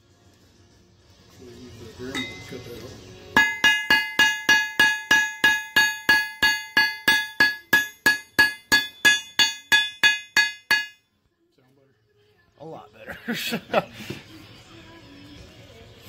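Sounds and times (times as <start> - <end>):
hammer striking steel: 2.1 - 2.8, 3.4 - 11.0.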